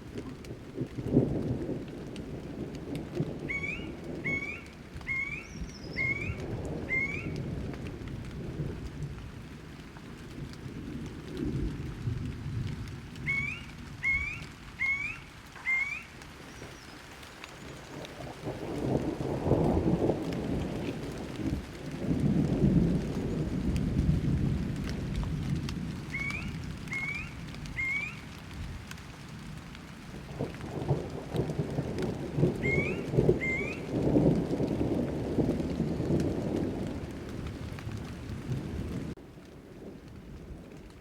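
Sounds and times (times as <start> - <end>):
rolling thunder: 0.0 - 9.6, 10.2 - 16.8, 17.8 - 41.0
steady rain: 0.0 - 41.0
bird whistling rising notes: 3.5 - 7.4, 13.3 - 17.0, 26.1 - 28.2, 32.6 - 33.9.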